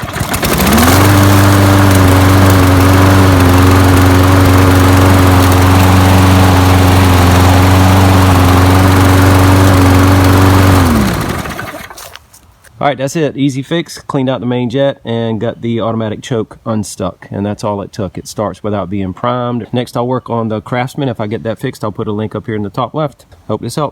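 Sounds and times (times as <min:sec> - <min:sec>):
mower engine running: 0:00.0 - 0:12.2.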